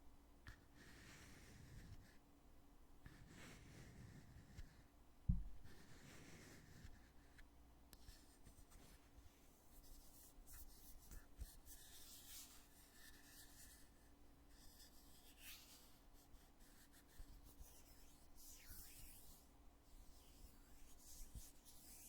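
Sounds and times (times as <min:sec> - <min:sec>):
small tap: 0:05.3 - 0:05.7.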